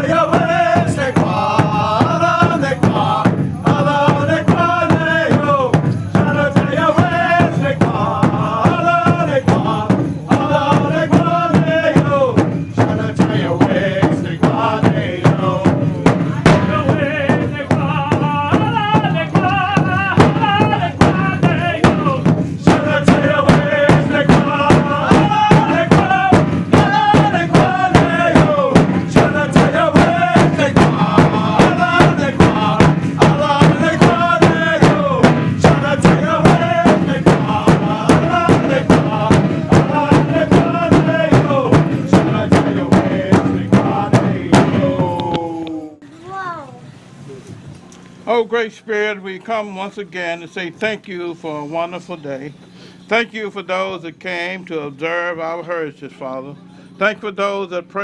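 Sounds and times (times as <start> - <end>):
large drum beat: 0.0 - 46.0
men singing a chant: 0.0 - 46.0.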